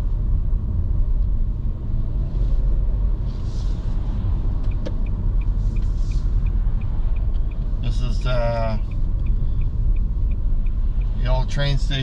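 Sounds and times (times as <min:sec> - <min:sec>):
car engine rumble inside cabin: 0:00.0 - 0:12.0
soft rushes of noise: 0:02.0 - 0:04.5
light regular ticking: 0:04.6 - 0:12.0.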